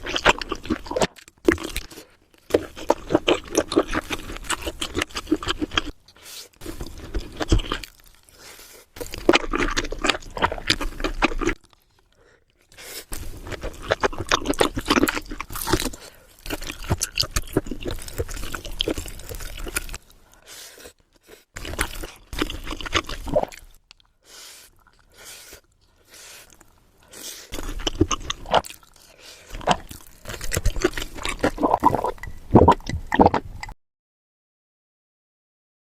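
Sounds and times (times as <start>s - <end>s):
chewing and crunching food: 0.0s - 33.8s.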